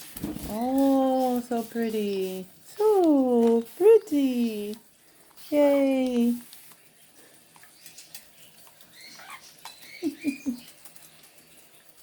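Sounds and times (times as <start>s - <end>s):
spray mist pattering: 0.0s - 8.3s
parrot chirps: 8.8s - 10.8s
parrot squeaks: 8.9s - 10.7s.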